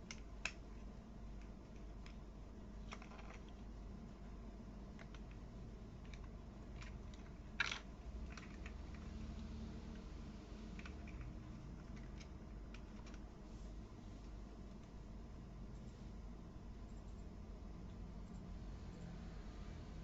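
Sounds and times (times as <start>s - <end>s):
toy building pieces clicking: 2.8s - 3.7s, 4.9s - 9.4s.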